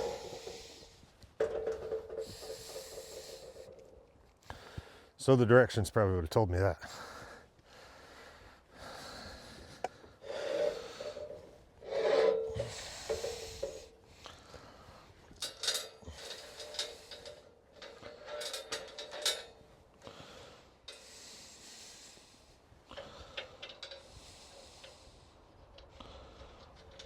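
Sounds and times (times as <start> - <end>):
metal scraping and rubbing: 0.0 - 4.0, 10.2 - 14.0, 15.4 - 19.5.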